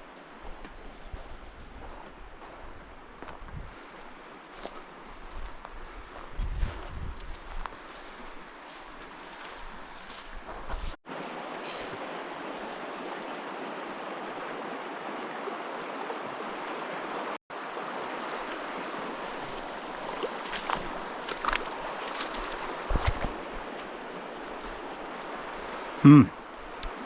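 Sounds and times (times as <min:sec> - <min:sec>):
stream water rushing: 0:07.7 - 0:27.0.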